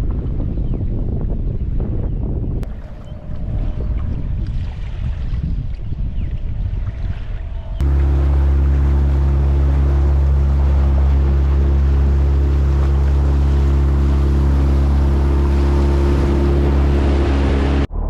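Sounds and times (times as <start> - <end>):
hiss of water and wind: 2.6 - 17.9
outboard motor running: 7.8 - 17.9.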